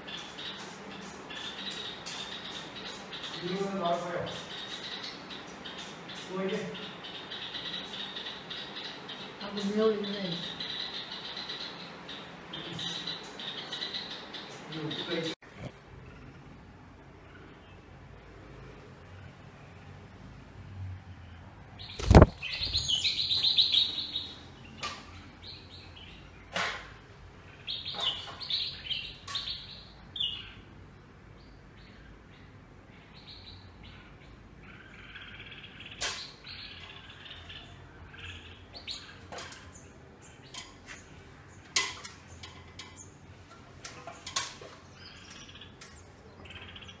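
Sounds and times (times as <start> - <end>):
small birds chirping: 0.0 - 47.0
loud thump: 22.0 - 22.4.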